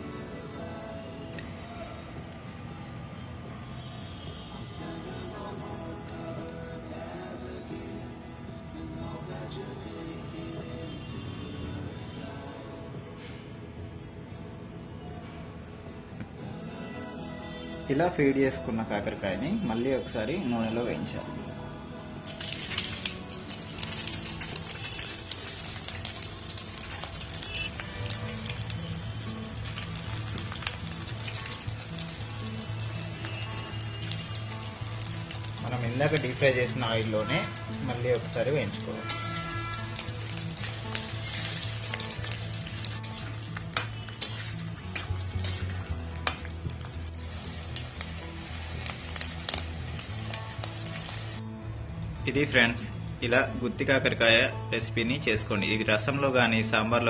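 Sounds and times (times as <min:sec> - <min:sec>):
food sizzling in hot oil: 0:22.2 - 0:51.4
spatula clinking and scraping pan: 0:22.4 - 0:28.7, 0:37.3 - 0:47.9.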